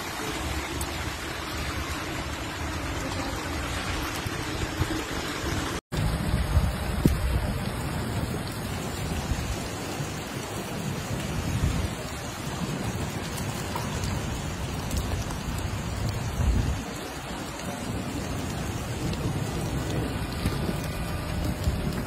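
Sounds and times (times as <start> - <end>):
heavy rain falling: 0.0 - 22.0
low rumbles: 17.9 - 22.0.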